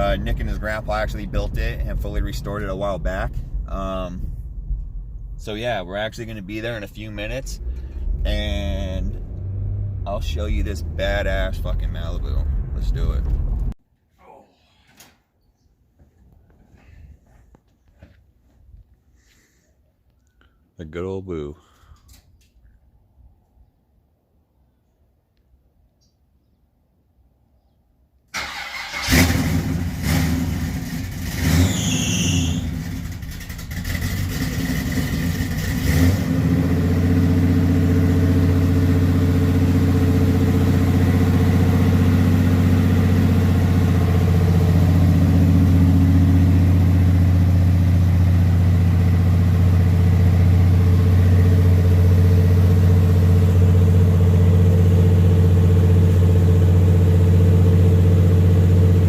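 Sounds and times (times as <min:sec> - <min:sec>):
car engine starting and idling: 0:00.0 - 0:13.8, 0:28.3 - 0:59.0.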